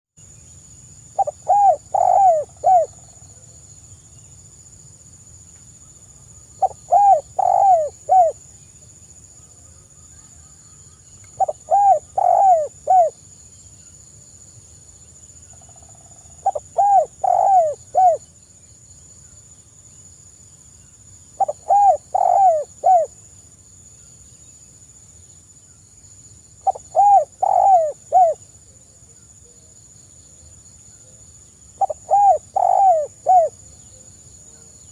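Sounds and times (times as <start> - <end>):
dove cooing: 1.2 - 3.0, 6.6 - 8.4, 11.4 - 13.2, 16.4 - 18.2, 21.4 - 23.1, 26.6 - 28.4, 31.8 - 33.6.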